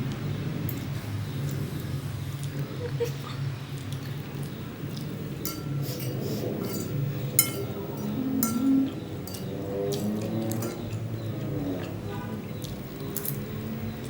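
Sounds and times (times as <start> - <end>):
utensils clinking against bowl: 0.6 - 3.2, 3.8 - 14.0.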